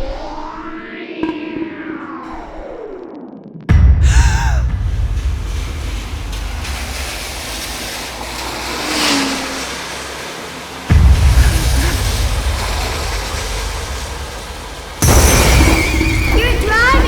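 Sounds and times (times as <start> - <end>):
deep rumble: 3.7 - 8.7, 10.6 - 17.0
train rushing at speed: 4.1 - 17.0.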